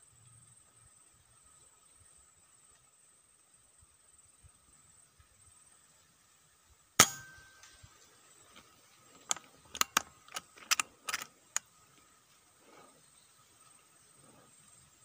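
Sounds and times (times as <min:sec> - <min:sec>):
air rifle shot: 0:07.0 - 0:07.5
sharp clicks: 0:09.2 - 0:11.7.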